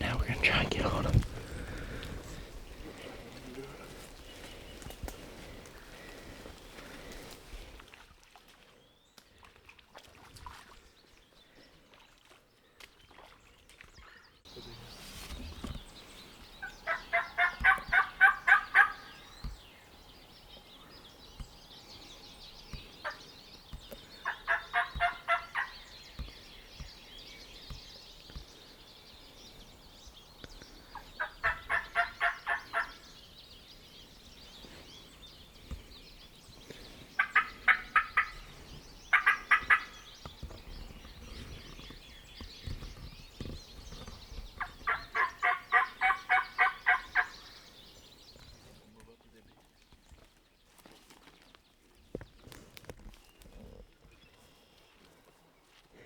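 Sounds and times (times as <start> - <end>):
turkey gobbling: 16.8 - 19.1, 24.2 - 25.7, 31.2 - 33.0, 37.2 - 38.4, 39.1 - 39.9, 44.6 - 47.3.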